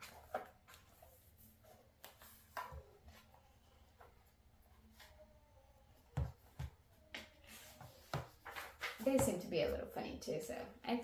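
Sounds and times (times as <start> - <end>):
book pages turning: 0.0 - 5.4, 6.4 - 9.4.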